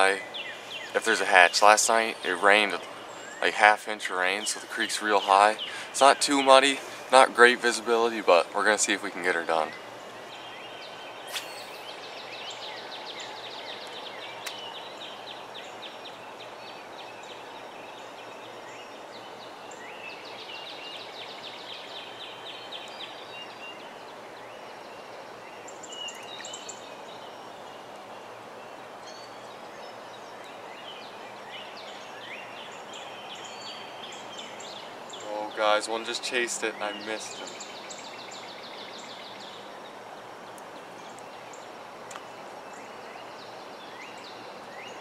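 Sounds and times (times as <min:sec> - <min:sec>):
outdoor background hiss: 0:00.0 - 0:45.0
short high chirps: 0:11.3 - 0:11.9.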